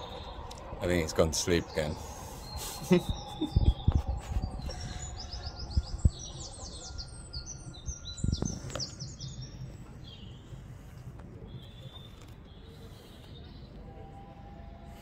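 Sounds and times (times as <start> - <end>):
songbird chirping and trilling: 0.0 - 10.9
dull low thumps: 2.9 - 6.6.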